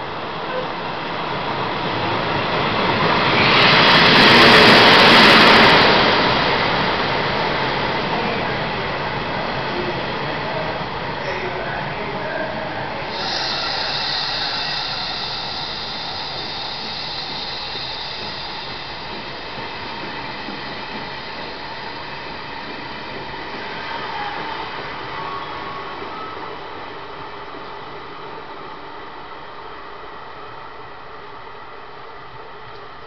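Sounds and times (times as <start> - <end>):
train carriages rushing past: 1.6 - 28.0
high hiss: 2.6 - 7.9, 12.9 - 24.0.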